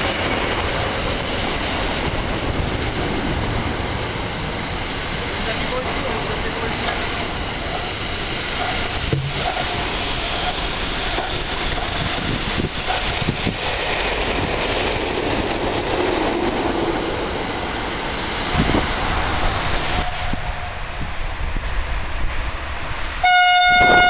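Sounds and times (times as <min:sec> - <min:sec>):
train wheels rushing on rails: 0:00.0 - 0:24.0
short knocks: 0:09.1 - 0:09.7.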